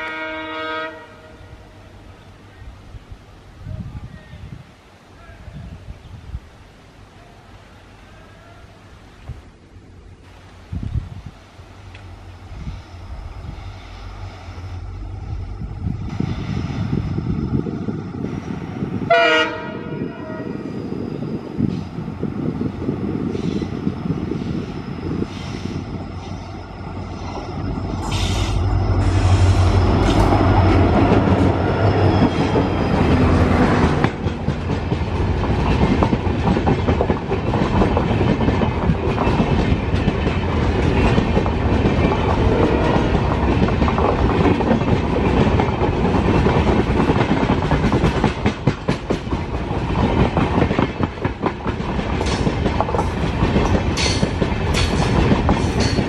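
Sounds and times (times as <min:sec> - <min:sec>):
locomotive engine hum: 0:07.2 - 0:19.9, 0:20.8 - 0:56.0
wheels clickety-clack over rail joints: 0:29.8 - 0:56.0.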